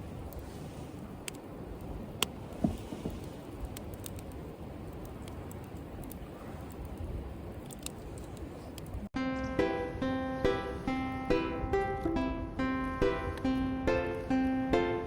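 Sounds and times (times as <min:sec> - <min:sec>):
wood fire crackling: 0:00.0 - 0:09.2.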